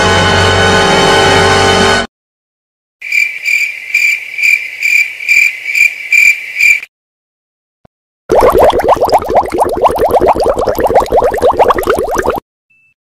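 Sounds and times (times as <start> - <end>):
cricket chirping: 3.0 - 6.9.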